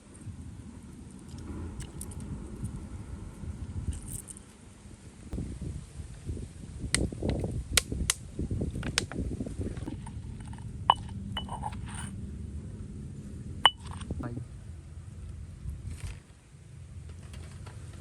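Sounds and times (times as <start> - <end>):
kitchenware clinking: 10.9 - 11.8
low scraping and rustling: 15.7 - 18.0.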